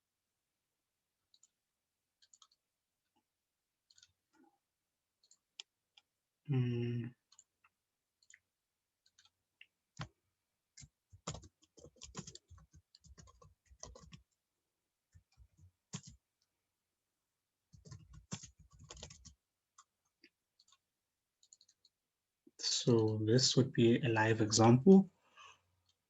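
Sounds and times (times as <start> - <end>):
computer keyboard typing: 1.3 - 1.6, 2.2 - 2.6, 3.8 - 4.2, 5.2 - 6.1, 7.2 - 9.4, 10.0 - 14.4, 15.1 - 16.2, 17.7 - 20.8, 21.4 - 22.0.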